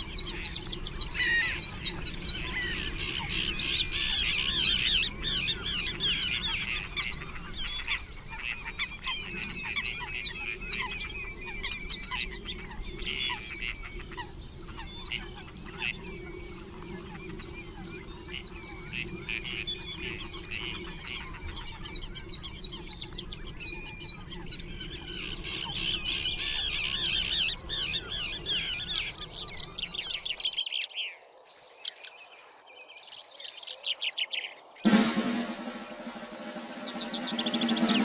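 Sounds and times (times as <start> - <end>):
birds chirping and twittering: 0.0 - 38.0
music with drums: 34.9 - 38.0.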